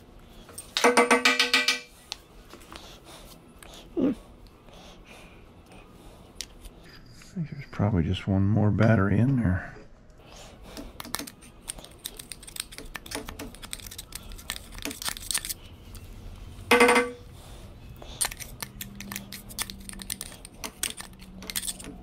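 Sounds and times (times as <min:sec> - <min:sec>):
metal tools clicking and scraping: 0:00.5 - 0:01.9, 0:11.0 - 0:16.0, 0:18.1 - 0:22.0.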